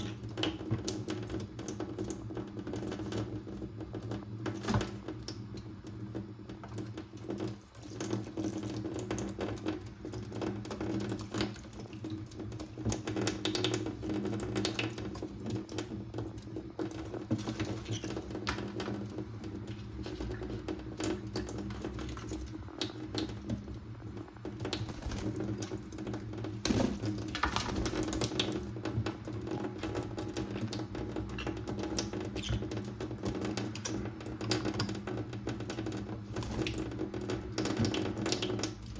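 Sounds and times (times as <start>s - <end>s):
small water splashes: 10.1s - 34.6s.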